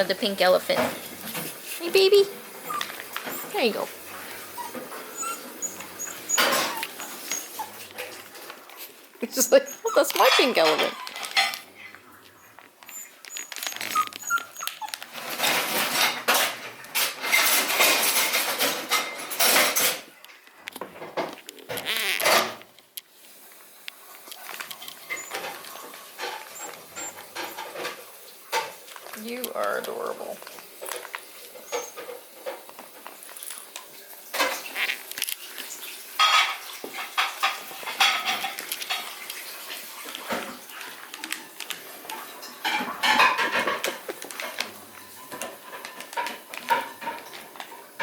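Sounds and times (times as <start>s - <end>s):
puppies scuffling and chewing toys: 0.0s - 48.0s
puppies whimpering: 2.5s - 8.2s, 9.4s - 15.2s, 25.1s - 27.4s, 31.6s - 32.1s.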